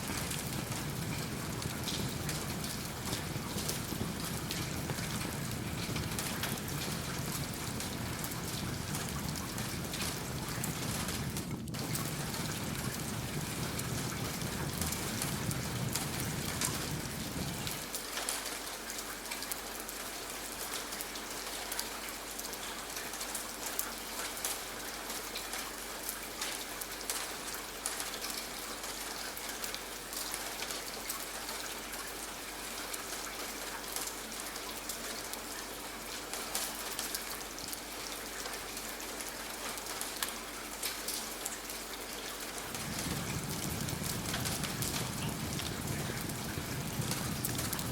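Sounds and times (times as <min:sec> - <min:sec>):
steady rain patter: 0:00.0 - 0:47.9.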